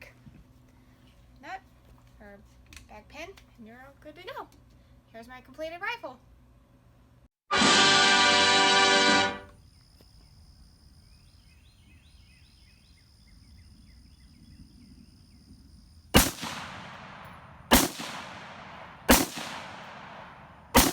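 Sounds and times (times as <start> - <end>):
rifle shots echoing: 16.2 - 20.9.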